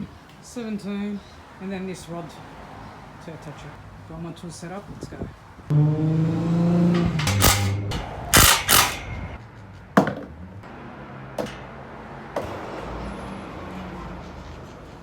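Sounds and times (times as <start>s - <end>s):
tools knocking and clattering: 6.8s - 9.4s, 11.4s - 11.8s
sharp clicks: 7.2s - 9.4s.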